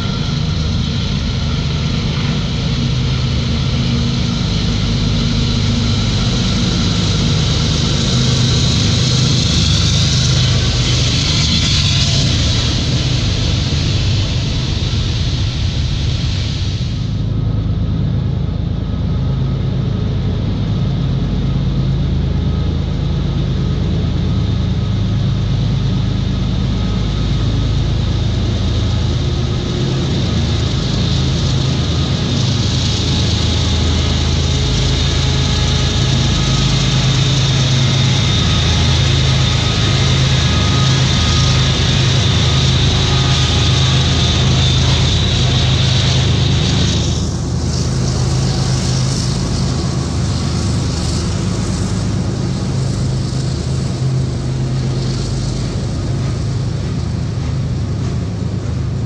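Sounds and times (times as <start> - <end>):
diesel locomotive engine: 0.0 - 59.0.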